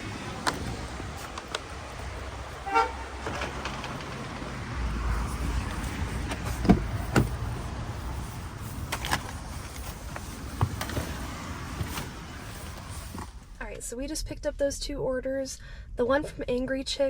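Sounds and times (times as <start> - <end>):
car door heavy thuds: 0.0 - 8.0, 8.8 - 13.4
clicks: 0.4 - 2.4.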